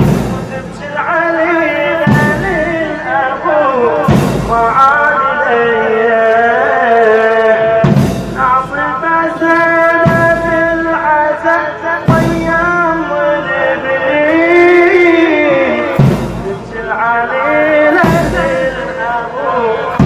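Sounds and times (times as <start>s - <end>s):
sharp beat: 0.0s - 1.0s, 4.0s - 4.8s, 7.8s - 9.1s, 15.9s - 17.0s, 17.9s - 19.1s
men singing a mourning chant: 0.0s - 20.0s.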